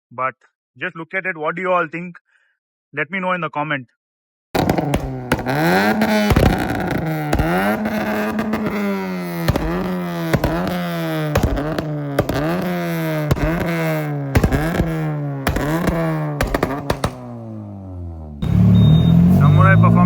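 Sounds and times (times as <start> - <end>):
exhaust pops and cracks: 4.6 - 17.6
car engine revving: 4.6 - 20.0.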